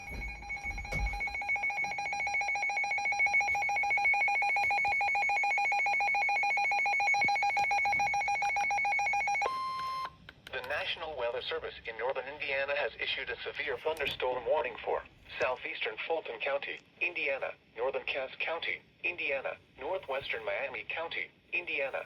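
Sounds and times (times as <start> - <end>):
two-tone electronic alarm warble: 0.0 - 10.1.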